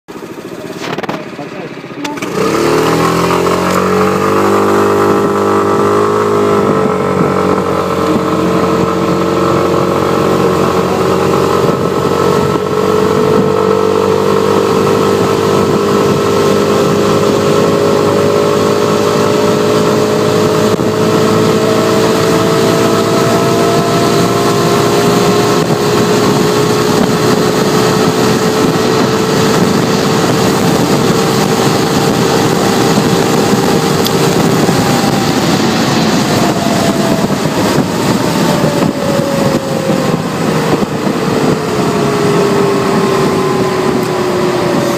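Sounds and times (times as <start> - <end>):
scooter engine at full throttle: 0.1 - 44.9
faint rising whine: 33.8 - 44.9.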